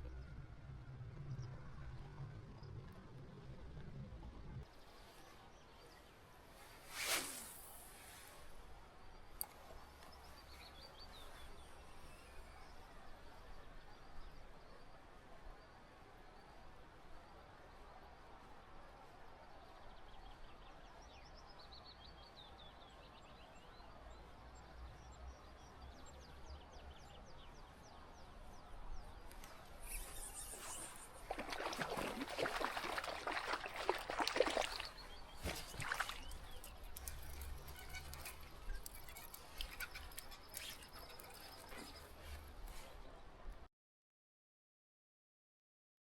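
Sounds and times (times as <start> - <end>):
river water rushing: 30.9 - 37.7.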